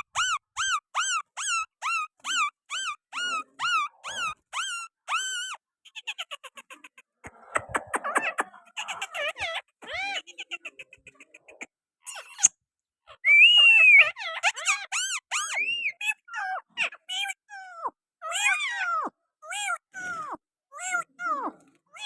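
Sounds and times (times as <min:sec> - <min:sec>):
parrots chirping: 0:00.0 - 0:12.5, 0:13.2 - 0:17.0
parrot whistling: 0:13.2 - 0:15.6.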